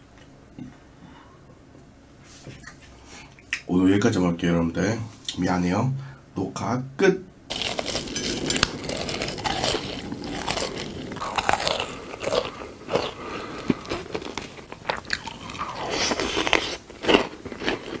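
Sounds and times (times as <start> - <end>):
person chewing crunchy food: 7.5 - 18.0.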